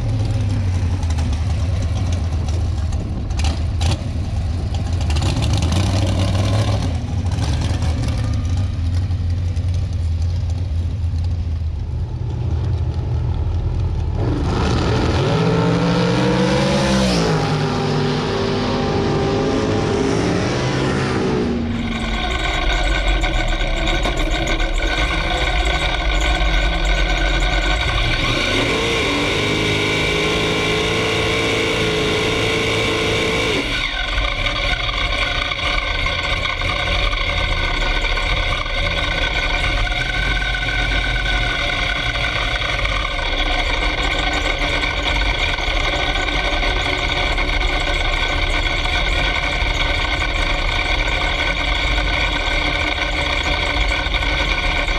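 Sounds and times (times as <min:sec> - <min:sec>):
race car engine idling: 0:00.0 - 0:16.7, 0:17.4 - 0:54.9
vehicle engine falling in pitch: 0:11.6 - 0:54.9.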